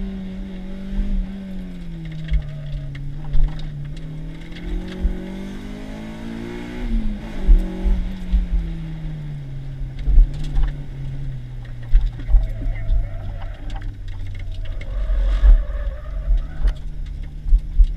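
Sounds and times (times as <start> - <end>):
car engine revving: 0.0 - 17.9
short low thumps: 10.0 - 17.9.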